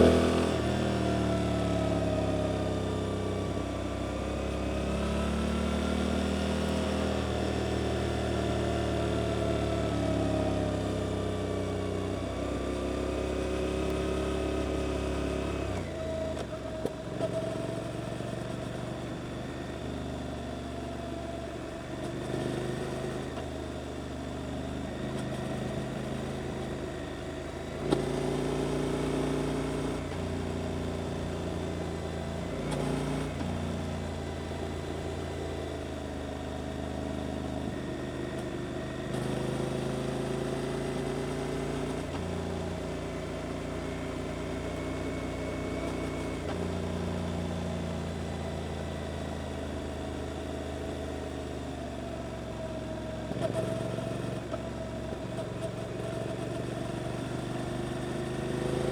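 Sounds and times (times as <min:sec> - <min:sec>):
motorcycle engine revving: 0:00.0 - 0:03.5.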